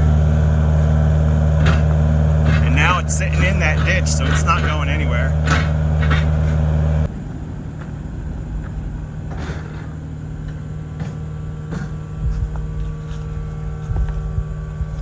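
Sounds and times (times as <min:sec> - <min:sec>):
heavy equipment engine running: 0:00.0 - 0:15.0
loud low rumble: 0:02.1 - 0:06.0, 0:12.1 - 0:15.0.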